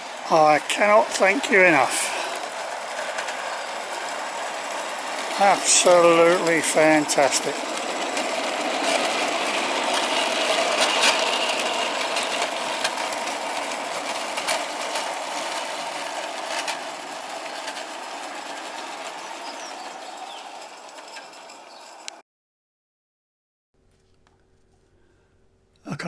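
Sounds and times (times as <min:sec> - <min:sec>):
model steam locomotive hissing: 0:00.0 - 0:21.8
model train clatter: 0:00.0 - 0:22.2.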